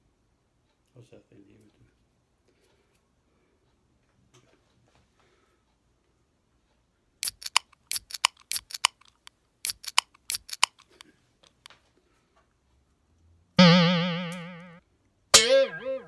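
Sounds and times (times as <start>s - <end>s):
sharp clicks: 7.2s - 11.7s.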